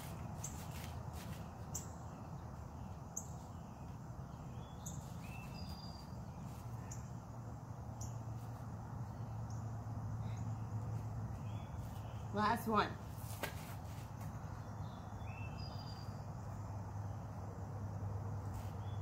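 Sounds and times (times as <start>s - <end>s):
steady low hum: 0.0s - 19.0s
birds chirping: 0.4s - 12.9s, 14.1s - 16.3s.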